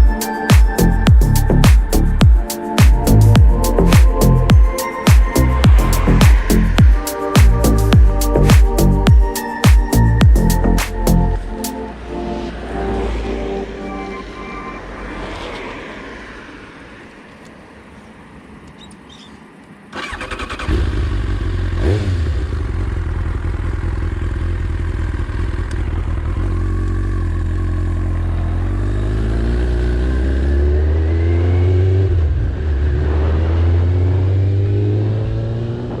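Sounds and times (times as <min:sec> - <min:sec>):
motorcycle engine rumbling: 0:00.8 - 0:09.3, 0:19.9 - 0:30.2.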